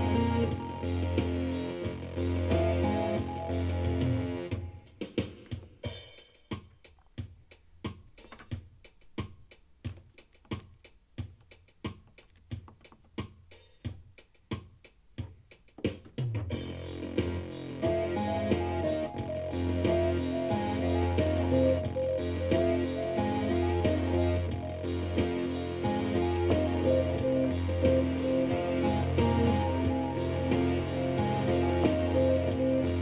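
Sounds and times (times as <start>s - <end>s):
keyboard playing music: 0.0s - 4.9s, 16.5s - 33.0s
drum machine pattern: 0.0s - 33.0s.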